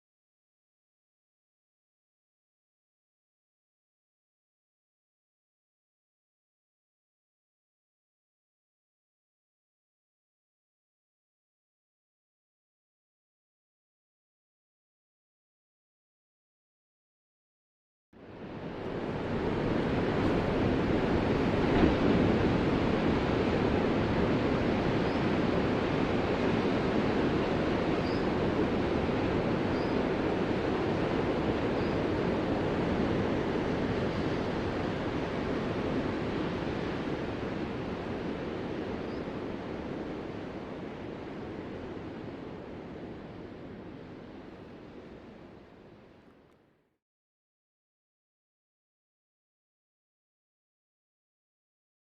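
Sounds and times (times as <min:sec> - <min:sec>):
ocean waves breaking: 0:18.3 - 0:45.4.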